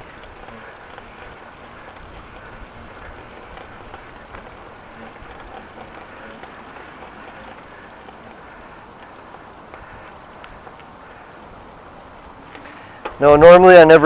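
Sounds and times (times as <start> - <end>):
bicycle riding on pavement: 0.0 - 14.0
small clicks and rattles: 0.0 - 14.0.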